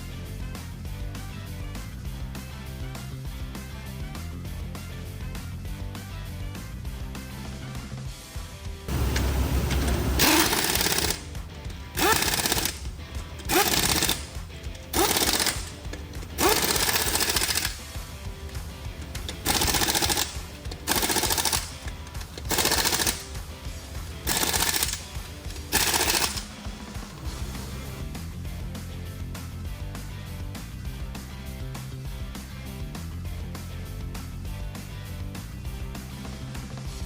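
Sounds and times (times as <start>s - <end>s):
impact wrench rattling: 8.9s - 28.0s.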